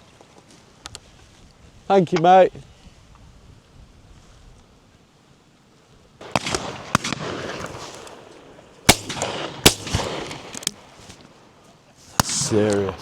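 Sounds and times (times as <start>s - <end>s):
shotguns firing: 6.2s - 11.3s, 12.2s - 13.0s.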